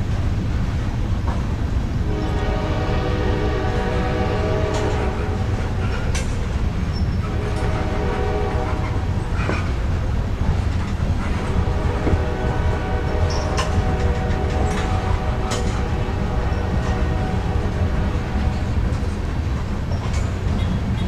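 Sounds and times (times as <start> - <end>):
sharp clanks of train cars: 0.0 - 21.0
train wheels rumbling on rails: 0.0 - 21.0
multi-tone train horn: 2.0 - 9.7, 11.2 - 19.4.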